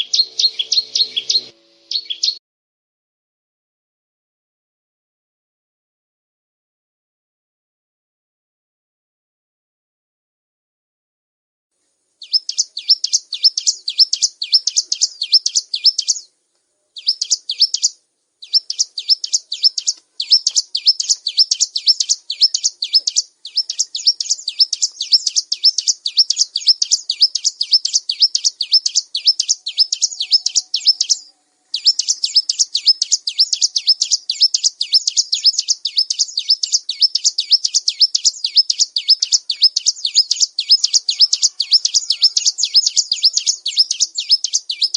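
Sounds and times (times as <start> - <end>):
bird chipping song: 0.0 - 2.4, 12.2 - 44.9.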